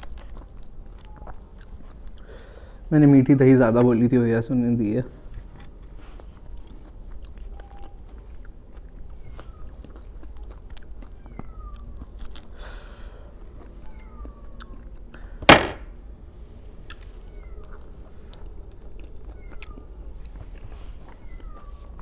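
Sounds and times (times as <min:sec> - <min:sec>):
loud sharp knock: 0:15.5 - 0:15.8.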